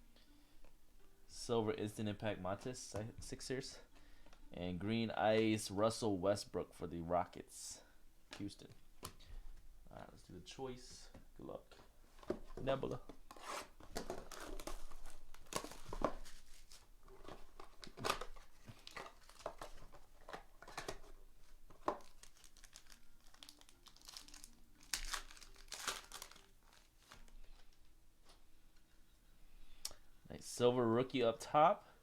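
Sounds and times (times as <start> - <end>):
plastic wrapping crinkling: 13.4 - 27.9.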